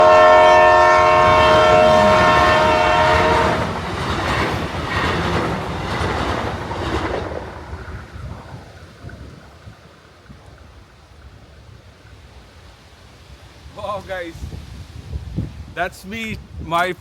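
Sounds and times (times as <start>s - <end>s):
train horn: 0.0s - 4.4s
train wheels clattering over rails: 1.1s - 8.7s.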